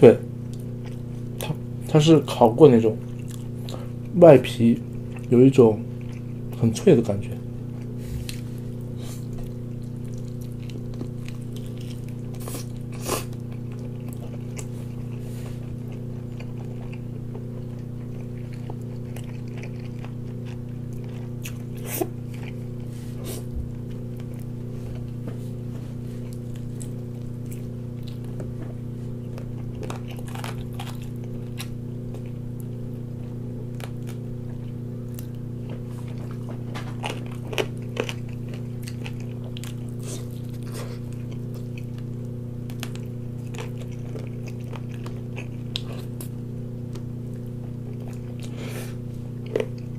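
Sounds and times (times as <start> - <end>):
low electrical hum: 0.0 - 49.9
biting and chewing chicken: 0.4 - 49.9.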